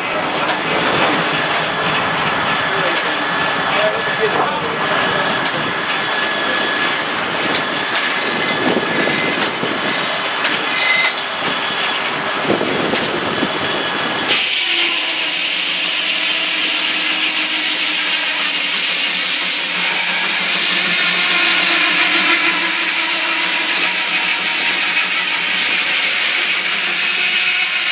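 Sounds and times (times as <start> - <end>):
sawmill machinery running: 0.0 - 27.9
clanks and ticks: 0.3 - 5.8.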